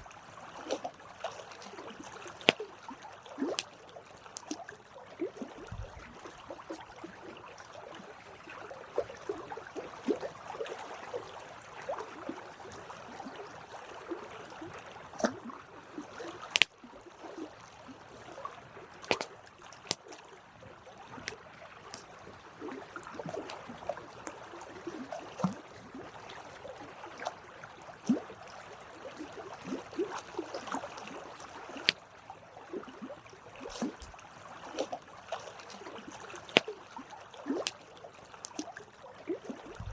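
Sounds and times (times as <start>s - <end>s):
wood snapping in fire: 16.5s - 16.7s
campfire crackling: 33.7s - 34.2s.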